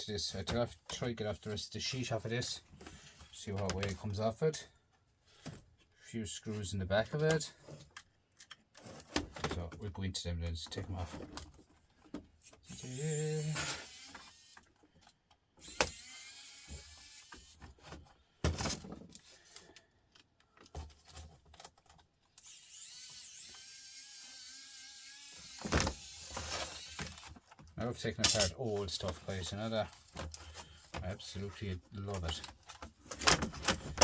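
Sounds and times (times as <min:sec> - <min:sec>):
electric screwdriver whirring: 0:12.7 - 0:14.7, 0:15.6 - 0:17.6, 0:22.4 - 0:27.2.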